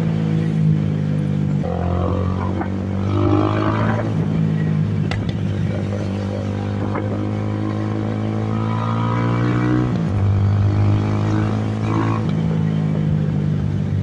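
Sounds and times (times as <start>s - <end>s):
motorcycle engine running: 0.0s - 14.0s
exhaust pops: 5.0s - 7.3s.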